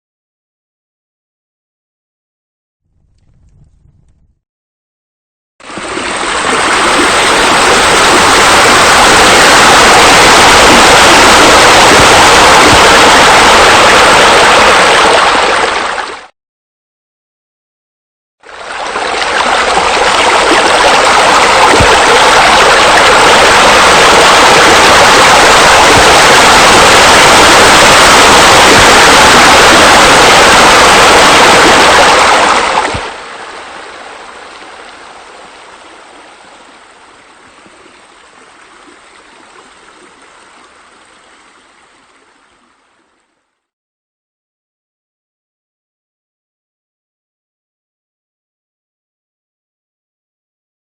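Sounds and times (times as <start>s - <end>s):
rush of falling water: 5.6s - 16.3s, 18.4s - 43.0s.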